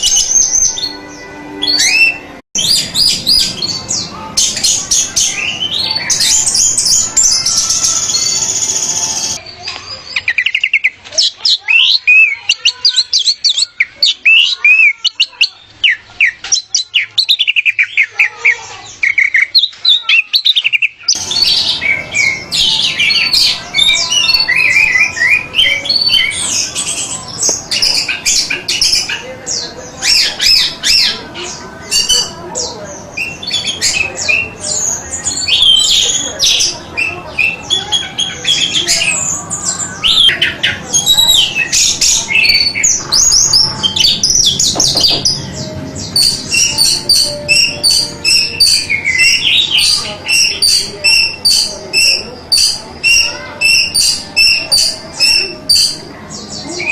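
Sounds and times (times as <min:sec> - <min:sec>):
bird singing whistled song: 0:00.0 - 0:09.4, 0:33.2 - 0:56.0.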